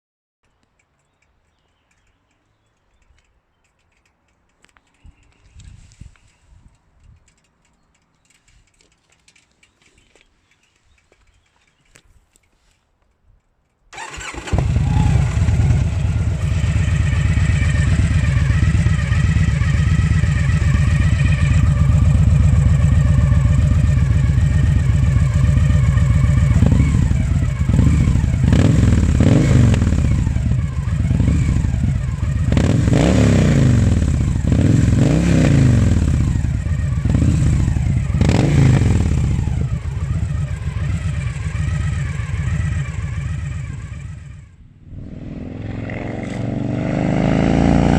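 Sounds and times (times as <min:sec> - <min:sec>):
motorcycle engine idling and revving: 0:14.0 - 0:47.9.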